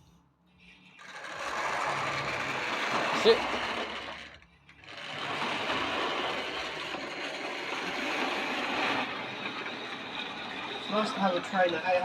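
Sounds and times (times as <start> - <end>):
model train motor whirring: 1.0 - 12.0.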